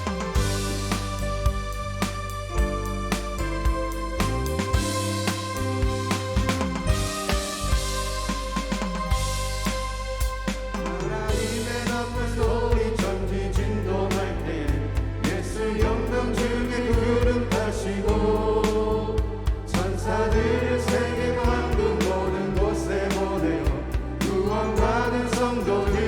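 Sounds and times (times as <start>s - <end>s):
drum beat: 0.0s - 13.8s
bass: 0.0s - 26.0s
keyboard: 0.0s - 26.0s
choir singing gospel: 11.0s - 26.0s.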